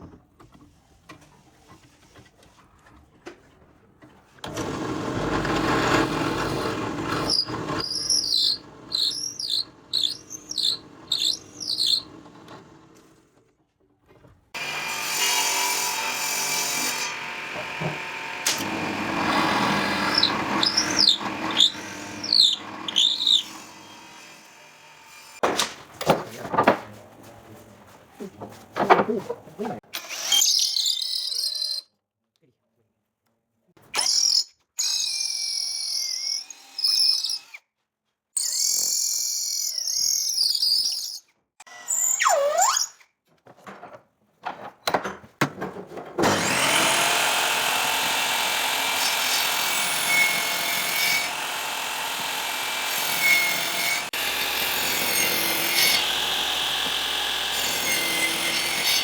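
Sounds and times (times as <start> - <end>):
power tool motor whine: 4.5 - 13.0, 14.6 - 25.3, 46.3 - 59.0
power tool rasping: 4.5 - 13.2, 14.6 - 25.4, 46.3 - 59.0.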